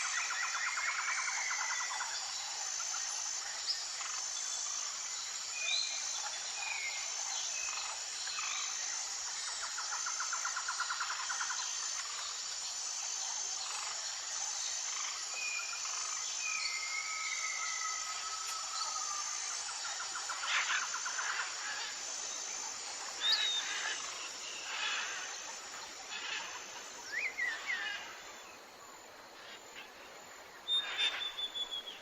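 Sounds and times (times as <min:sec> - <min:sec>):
insect drone: 0:00.0 - 0:32.0.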